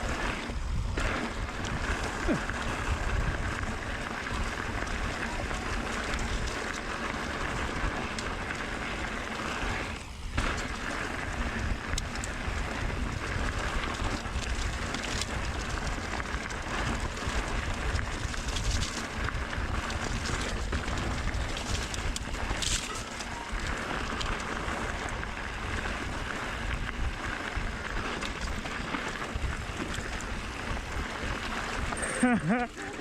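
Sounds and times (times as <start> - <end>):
wind buffeting microphone: 0.0 - 6.7
bike rattling and knocking: 0.0 - 33.0
tyres rolling over dirt: 0.0 - 33.0.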